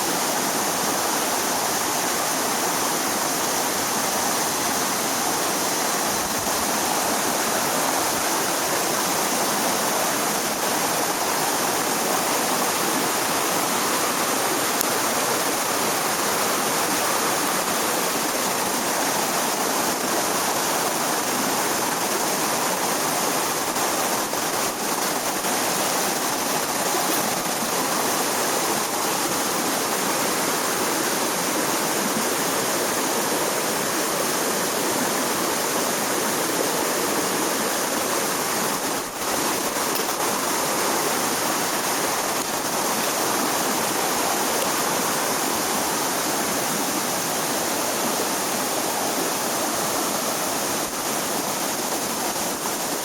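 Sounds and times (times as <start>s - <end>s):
stream water flowing: 0.0s - 53.0s.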